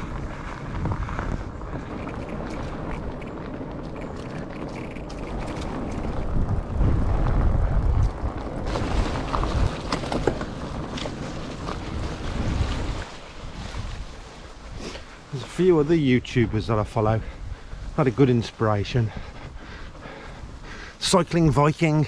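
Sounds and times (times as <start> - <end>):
bike clicks and rattles: 0.0 - 12.9
wind rumbling on microphone: 0.0 - 21.6.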